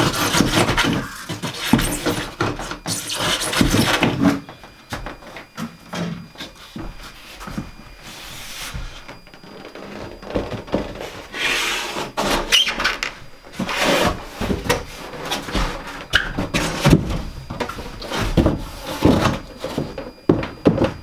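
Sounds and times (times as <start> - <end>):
wooden boards knocking and scraping: 0.0 - 5.4, 12.2 - 21.0.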